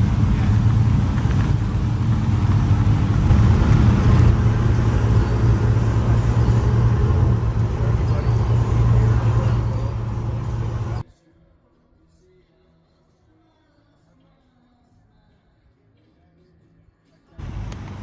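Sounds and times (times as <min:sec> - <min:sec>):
car engine idling: 0:00.0 - 0:11.0, 0:17.4 - 0:18.0.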